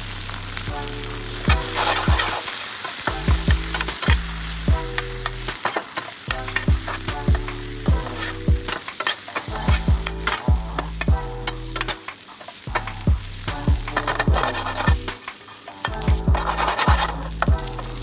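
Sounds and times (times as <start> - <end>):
food sizzling in hot oil: 0.0 - 18.0
metal spatula scraping a pan: 1.0 - 13.0, 13.8 - 18.0.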